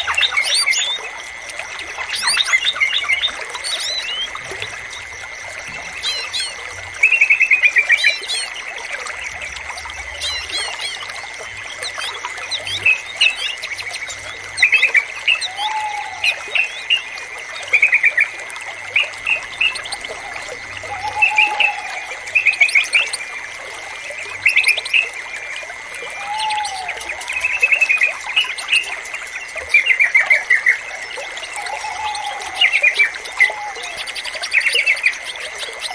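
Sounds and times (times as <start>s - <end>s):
bird singing bubbly notes: 0.0s - 35.9s
trickling water: 0.0s - 35.9s
small birds chirping: 2.0s - 16.8s.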